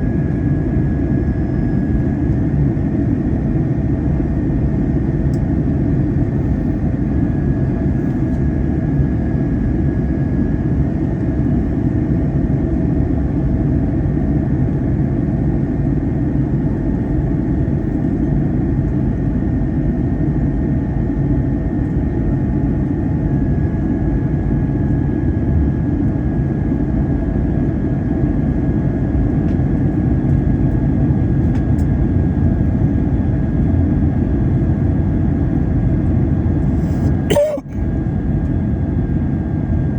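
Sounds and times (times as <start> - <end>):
faint steady whine: 0.0 - 25.0
airplane engines and airflow rumble: 0.0 - 39.9.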